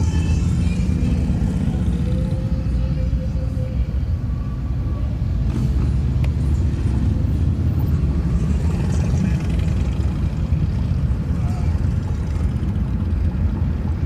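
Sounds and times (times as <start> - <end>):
motorcycle engines rumbling: 0.0 - 14.0
street traffic: 0.0 - 14.0.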